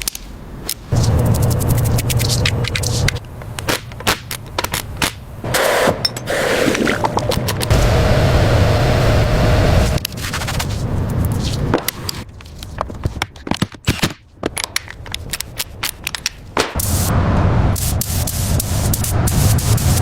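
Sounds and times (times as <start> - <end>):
steady mechanical whir: 7.0 - 10.1
sharp clicks and knocks: 11.7 - 16.8.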